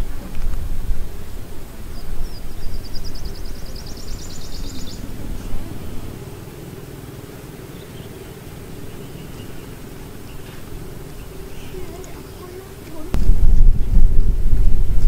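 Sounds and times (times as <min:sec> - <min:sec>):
low rumble: 0:00.0 - 0:15.0
bird trilling: 0:01.8 - 0:13.2.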